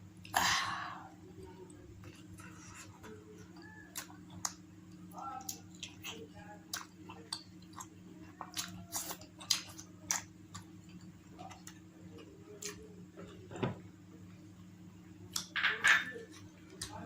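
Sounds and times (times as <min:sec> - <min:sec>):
chewing with wet mouth smacks: 0:02.0 - 0:13.4.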